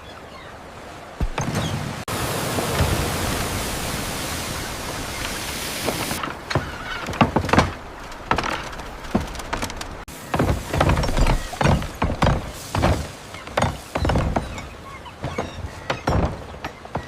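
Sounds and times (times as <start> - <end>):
construction knocks and thuds: 1.2 - 1.8, 6.2 - 17.0.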